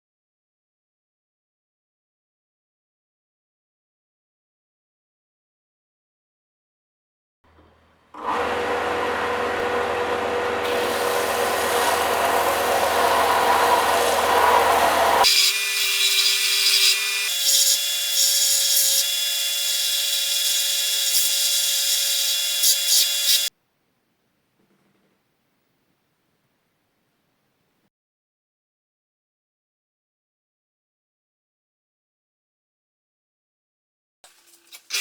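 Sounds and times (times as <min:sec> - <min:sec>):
power tool grinding rust: 0:08.2 - 0:23.5
steady whine: 0:08.5 - 0:15.2.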